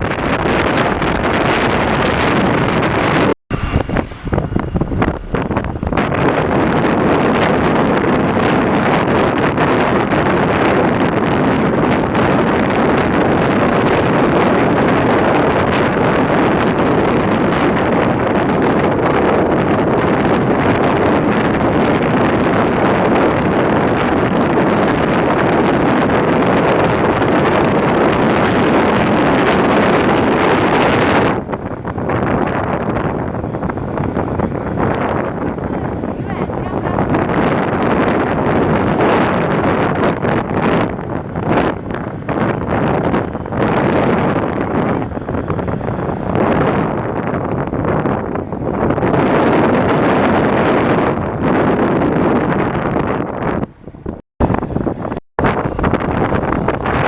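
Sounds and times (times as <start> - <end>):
wind on microphone: 0.0 - 57.0.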